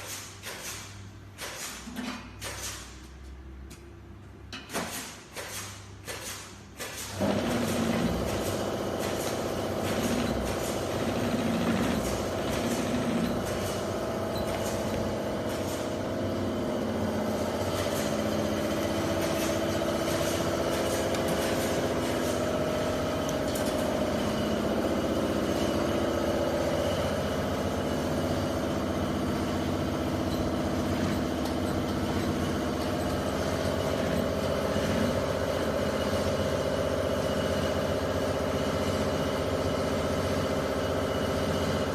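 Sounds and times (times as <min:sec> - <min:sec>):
sewing machine motor hum: 0:07.1 - 0:28.2.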